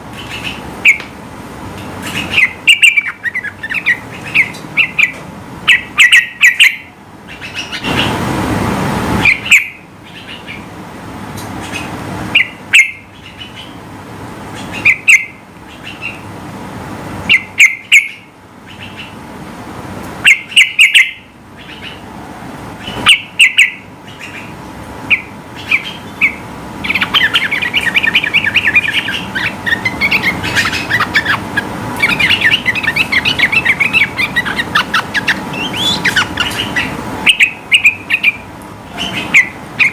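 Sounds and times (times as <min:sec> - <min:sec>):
bird fast chatter: 0:02.0 - 0:08.2, 0:22.8 - 0:39.9
rush of noise: 0:07.7 - 0:09.9.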